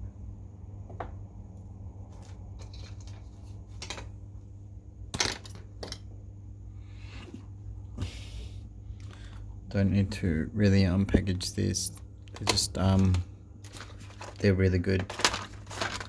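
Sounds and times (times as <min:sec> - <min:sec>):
steady low hum: 0:00.0 - 0:16.0
plastic packaging rustle: 0:12.4 - 0:16.0.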